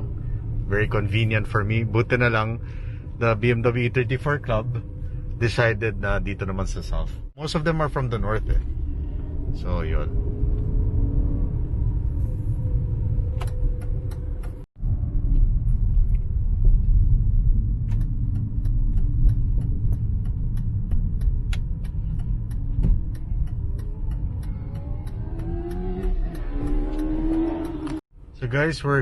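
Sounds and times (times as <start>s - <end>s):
car interior road rumble: 0.0s - 29.0s
light regular ticking: 17.2s - 28.0s.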